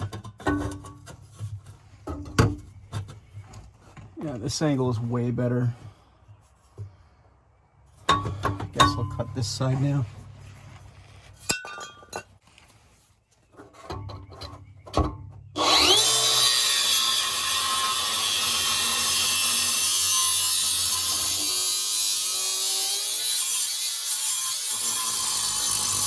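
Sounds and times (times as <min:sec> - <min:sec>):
electric cutter cutting steel pipe: 0:15.6 - 0:26.0.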